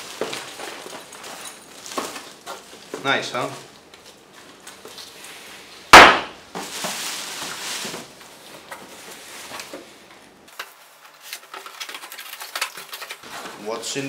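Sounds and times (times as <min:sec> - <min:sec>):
rustling of box: 0:00.0 - 0:05.6, 0:06.5 - 0:14.0
loud sharp knock: 0:05.9 - 0:06.4.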